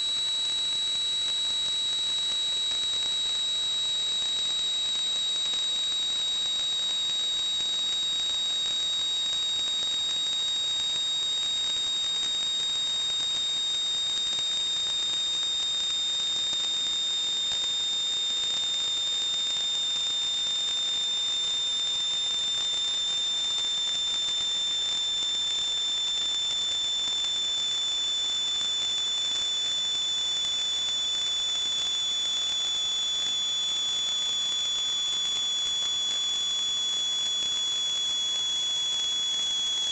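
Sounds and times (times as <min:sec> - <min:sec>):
water pipes whistling: 0:18.9 - 0:39.9.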